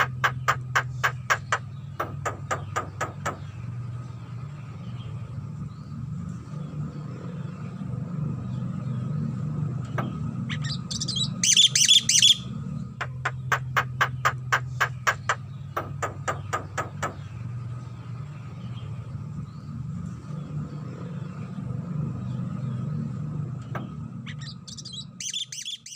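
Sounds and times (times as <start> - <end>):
bird calling: 0.0 - 3.4, 10.0 - 16.7, 24.3 - 25.9
bird clicking notes: 0.0 - 3.4.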